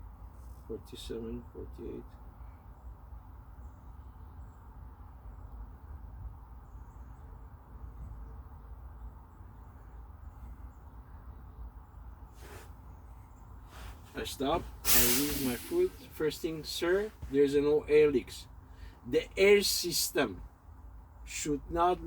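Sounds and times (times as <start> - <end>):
low steady rumble: 0.0 - 22.0
short hiss: 12.3 - 12.8, 13.7 - 17.4.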